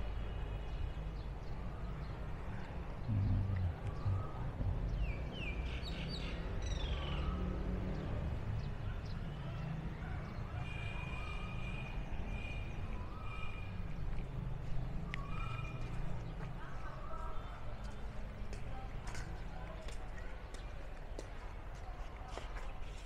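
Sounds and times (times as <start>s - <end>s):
steady low rumble: 3.0s - 5.5s
birds chirping: 3.0s - 7.1s.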